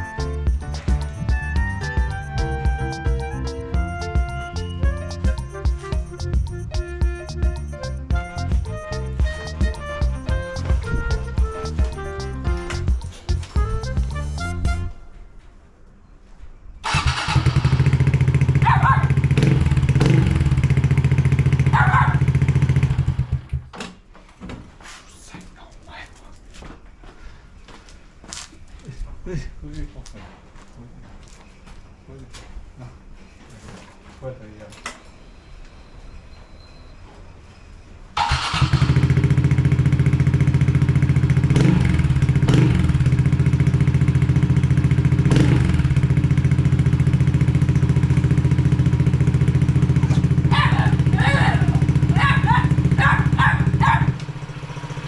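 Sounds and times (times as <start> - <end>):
brief higher-pitched sound: 0.0 - 15.2
motorcycle engine idling: 16.9 - 23.5, 38.2 - 55.0.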